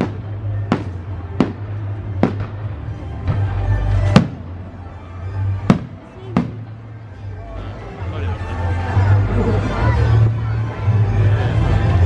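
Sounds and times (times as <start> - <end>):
fireworks exploding: 0.0 - 4.7, 5.4 - 6.8
music playing: 0.0 - 12.0.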